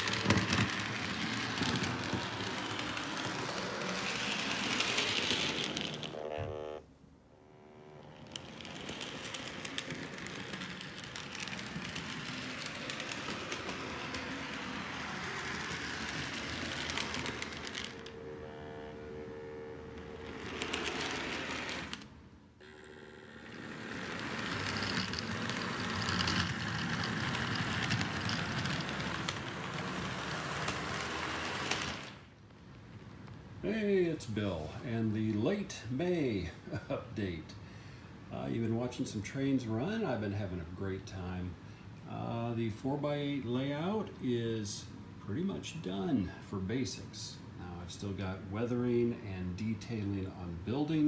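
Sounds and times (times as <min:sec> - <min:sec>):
wheels clicking on rails: 0:00.0 - 0:06.2, 0:07.7 - 0:22.1, 0:23.3 - 0:32.3
model train motor whir: 0:00.0 - 0:06.8, 0:07.4 - 0:32.3
short humming tone: 0:06.0 - 0:08.6, 0:17.6 - 0:22.0.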